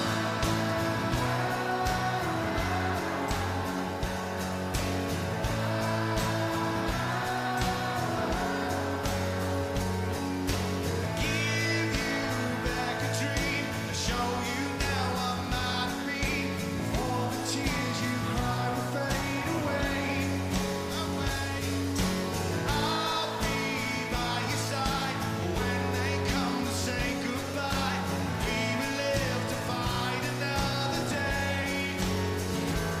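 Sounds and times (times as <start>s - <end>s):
person singing: 0.0s - 22.0s, 22.6s - 32.6s
rock band playing: 0.0s - 33.0s.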